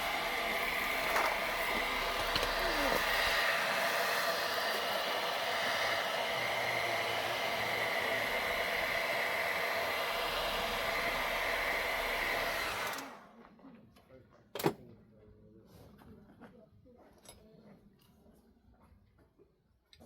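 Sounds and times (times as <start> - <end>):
heating torch hissing: 0.0 - 13.2.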